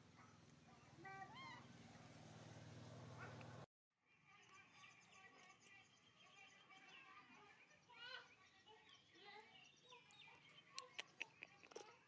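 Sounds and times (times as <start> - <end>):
small birds chirping: 0.1 - 12.0.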